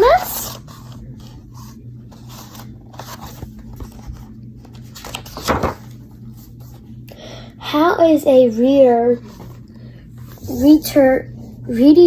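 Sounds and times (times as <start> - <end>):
paper pages rustling: 0.0 - 7.0, 9.1 - 10.5
low steady hum: 0.0 - 12.0.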